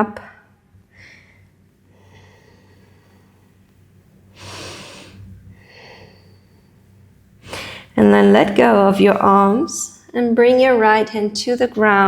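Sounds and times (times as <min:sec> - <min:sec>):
faint low hum: 0:00.0 - 0:12.0
person breathing out: 0:04.4 - 0:06.8, 0:07.4 - 0:07.9.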